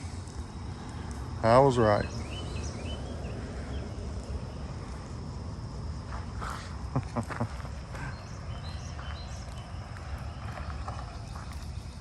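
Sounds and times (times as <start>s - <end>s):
low rumbling noise: 0.0s - 12.0s.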